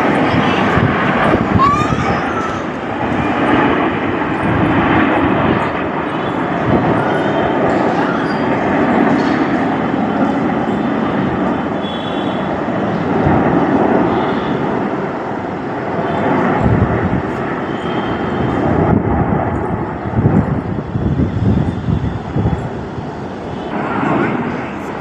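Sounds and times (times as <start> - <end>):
jet aircraft flying over: 0.0 - 25.0.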